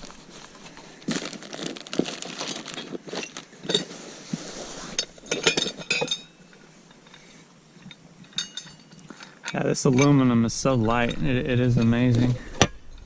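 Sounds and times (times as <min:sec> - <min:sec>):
packing material rustling: 0:00.0 - 0:05.5
metal parts clinking: 0:04.9 - 0:07.2, 0:07.8 - 0:13.0.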